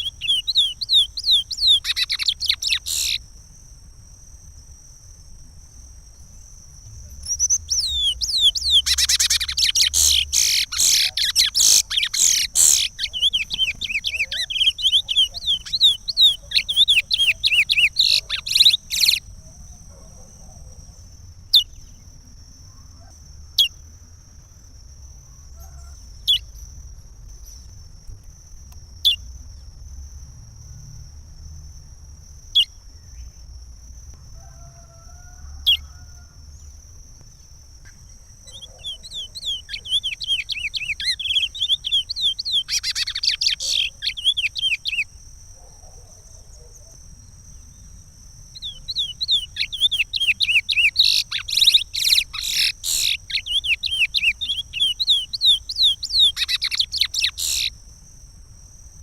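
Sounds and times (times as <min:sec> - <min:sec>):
finch singing whistled notes: 0:00.0 - 0:03.2, 0:07.2 - 0:19.3, 0:38.5 - 0:45.1, 0:48.6 - 0:57.7
short bird chirps: 0:00.0 - 0:03.2.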